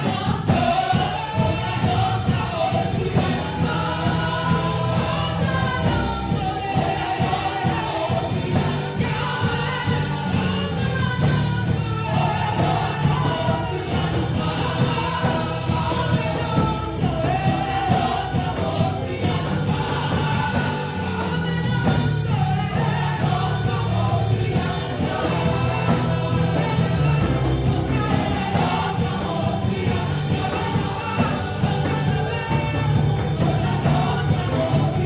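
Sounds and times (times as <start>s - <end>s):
band playing worship music: 0.0s - 35.0s
people singing: 0.0s - 35.0s.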